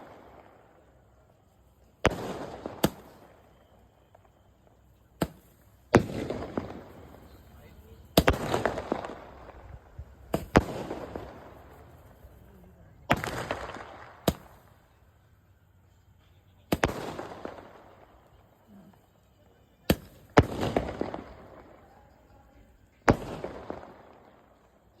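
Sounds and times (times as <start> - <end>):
firework crackling: 0.0 - 16.0, 16.6 - 25.0
firework rocket bangs: 2.1 - 3.5, 5.2 - 14.8, 19.9 - 21.9, 23.0 - 24.3.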